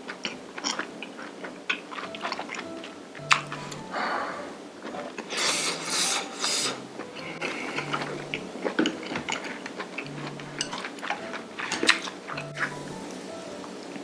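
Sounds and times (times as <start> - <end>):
wet chewing clicks and smacks: 0.0 - 3.6.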